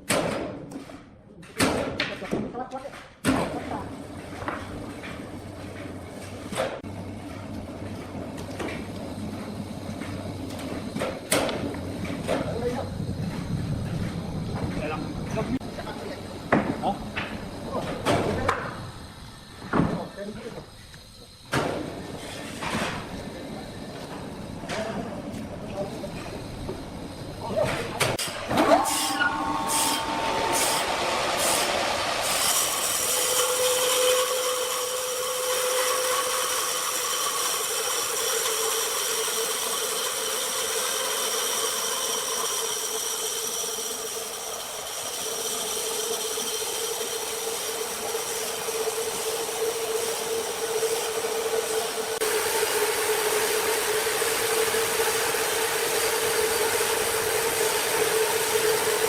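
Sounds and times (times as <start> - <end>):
saw running with whine: 28.5 - 59.0.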